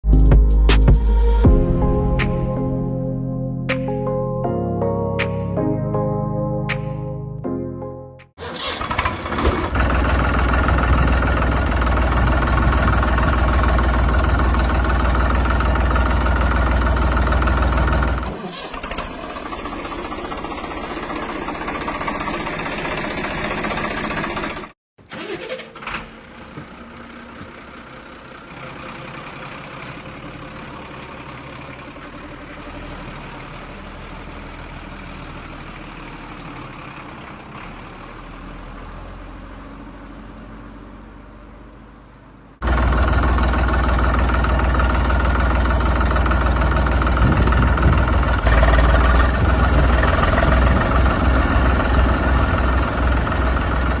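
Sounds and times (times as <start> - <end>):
mini tractor engine running: 8.4 - 38.0, 42.6 - 54.0.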